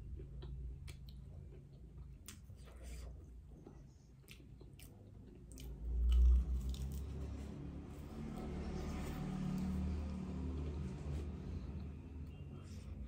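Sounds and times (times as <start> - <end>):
chewing crunchy food: 0.0 - 7.5.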